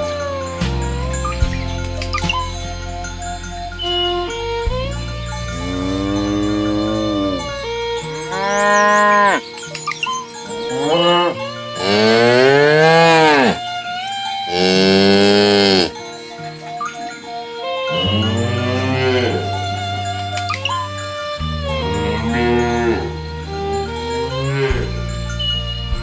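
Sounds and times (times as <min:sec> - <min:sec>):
cows mooing: 0:05.3 - 0:13.7, 0:14.5 - 0:16.2, 0:17.8 - 0:25.8.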